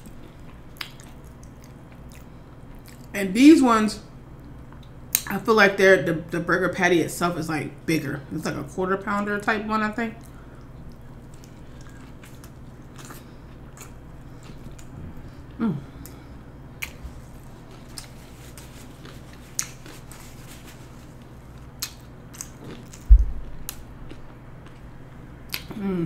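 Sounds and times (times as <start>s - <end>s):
close-miked chewing: 0.3s - 3.1s, 10.2s - 14.9s, 16.8s - 24.8s
low thump: 23.1s - 23.6s.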